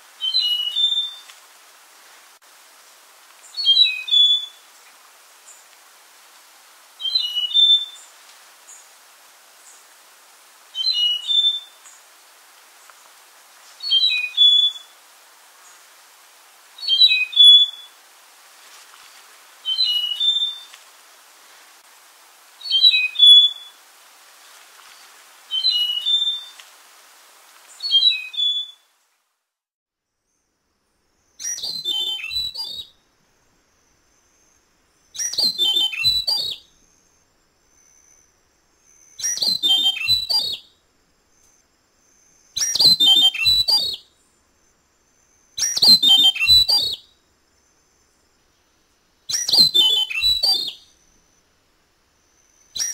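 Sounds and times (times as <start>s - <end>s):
bird singing fuller phrases: 0.2s - 1.3s, 3.4s - 4.6s, 7.0s - 8.1s, 10.8s - 12.0s, 13.8s - 14.9s, 16.8s - 17.9s, 19.6s - 20.7s, 22.6s - 23.8s, 24.9s - 26.6s, 27.7s - 28.9s, 31.2s - 40.7s, 41.3s - 51.5s, 52.2s - 52.9s
bird singing short high phrases: 27.8s - 28.8s, 31.4s - 32.9s, 35.1s - 36.7s, 38.8s - 40.7s, 42.5s - 44.0s, 45.5s - 47.1s, 49.3s - 50.9s, 52.5s - 52.9s.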